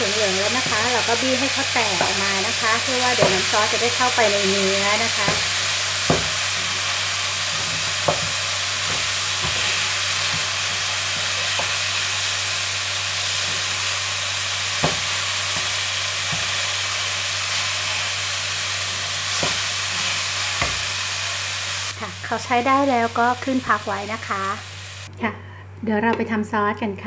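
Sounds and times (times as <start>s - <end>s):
eggplant sizzling in hot oil: 0.0s - 25.1s
wooden spatula knocking on pan: 2.0s - 2.2s, 3.2s - 3.5s, 5.2s - 5.5s, 6.1s - 6.4s, 7.6s - 9.6s, 14.8s - 15.7s, 20.6s - 20.8s.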